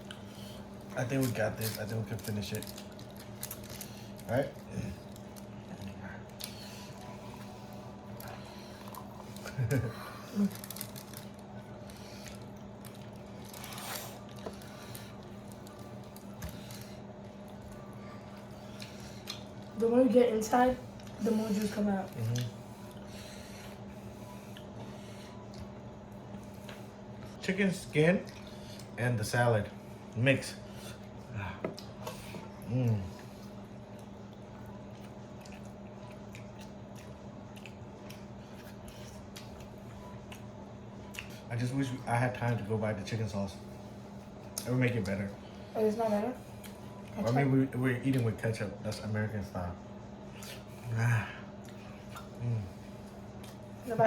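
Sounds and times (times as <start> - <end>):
chewing and tearing chicken: 0.0 - 19.8, 20.9 - 29.0, 31.0 - 42.7, 50.2 - 53.8
steady low hum: 0.0 - 54.0.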